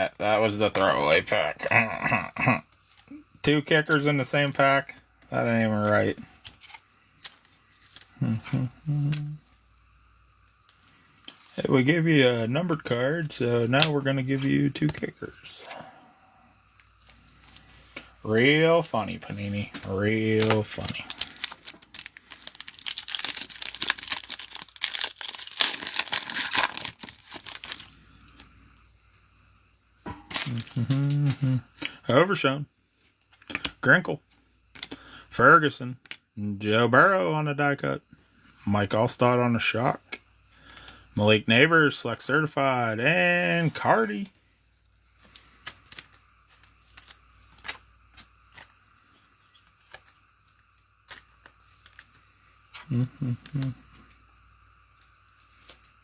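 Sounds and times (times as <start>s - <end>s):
foil wrapper tearing and crinkling: 19.8s - 28.5s, 30.3s - 31.3s, 45.3s - 48.7s, 51.0s - 52.2s.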